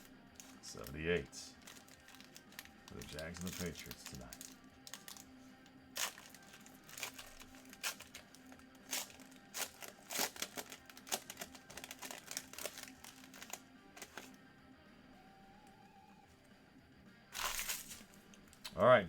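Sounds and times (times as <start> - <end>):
plastic crinkling: 1.5 - 5.3, 5.9 - 14.3, 17.4 - 18.3
trading cards clicking: 1.6 - 5.3, 6.0 - 14.3, 17.4 - 18.8.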